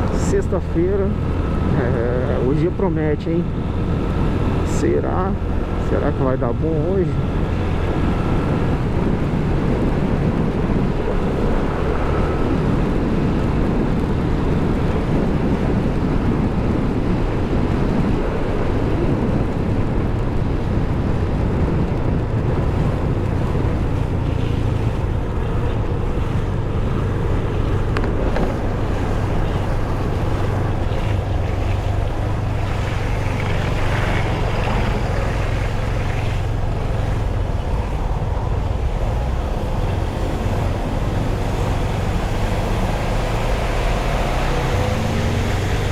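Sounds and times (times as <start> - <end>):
motorcycle engine drone: 0.0 - 45.9
wind buffeting microphone: 0.0 - 45.9.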